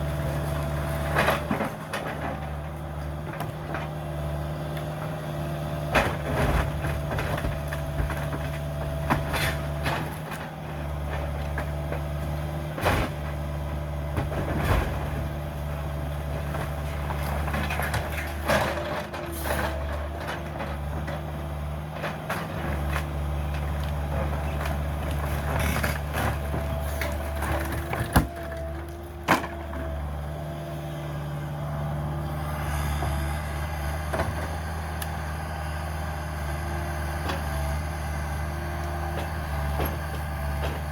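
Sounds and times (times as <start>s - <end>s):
excavator diesel engine running: 0.0s - 40.9s
debris knocking and cracking: 5.9s - 15.5s.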